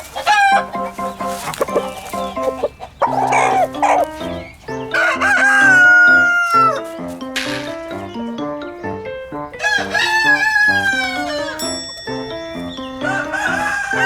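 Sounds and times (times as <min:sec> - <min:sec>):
rooster crowing: 0:00.0 - 0:00.9, 0:01.5 - 0:07.1, 0:09.5 - 0:14.0
rooster squawking: 0:00.0 - 0:08.1, 0:09.6 - 0:12.0, 0:12.7 - 0:14.0
light background music: 0:00.3 - 0:14.0.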